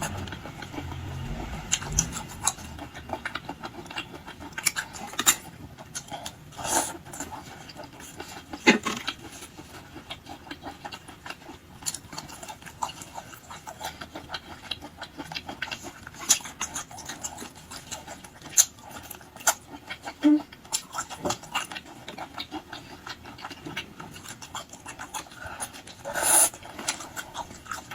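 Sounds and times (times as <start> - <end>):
wet chewing and smacking: 3.3 - 27.9.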